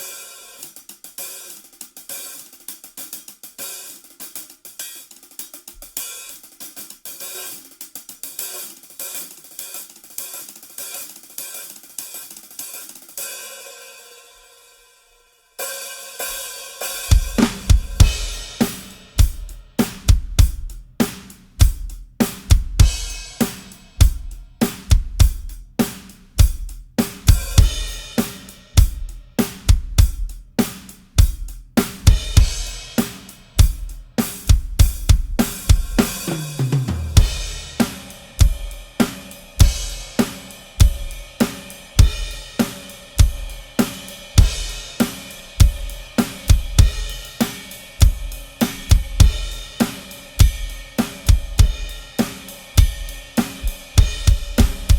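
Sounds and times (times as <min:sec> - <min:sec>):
drum kit groove: 0:00.0 - 0:14.3, 0:15.6 - 0:54.9
crash and ride cymbals: 0:00.0 - 0:14.8, 0:15.6 - 0:54.9
tom fill: 0:17.0 - 0:54.9.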